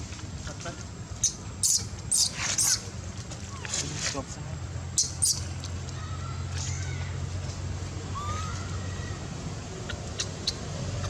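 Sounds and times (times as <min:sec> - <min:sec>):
baby monkey squeaky calls: 0:01.2 - 0:02.8, 0:05.0 - 0:05.5.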